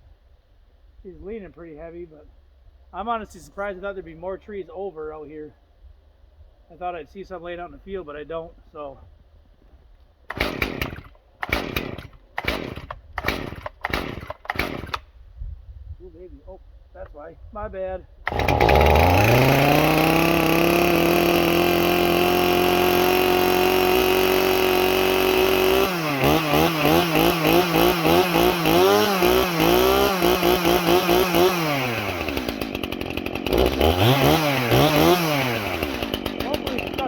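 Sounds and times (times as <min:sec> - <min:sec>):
chainsaw revving: 0:10.3 - 0:15.1, 0:18.3 - 0:37.0.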